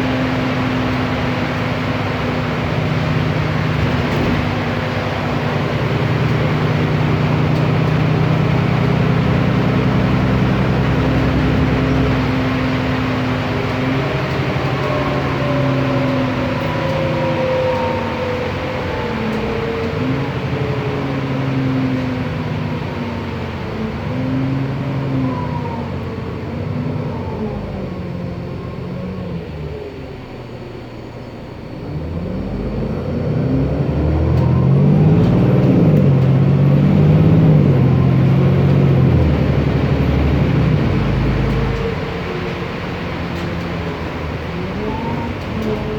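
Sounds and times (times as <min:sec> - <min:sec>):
bus diesel engine running: 0:00.0 - 0:45.9
whine gliding down: 0:31.8 - 0:45.9.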